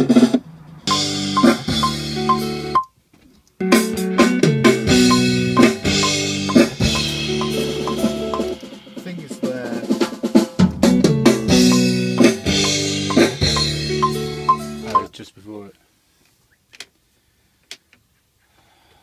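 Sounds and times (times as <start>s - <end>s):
rock band playing: 0.9s - 2.8s, 3.6s - 9.0s, 10.3s - 15.1s.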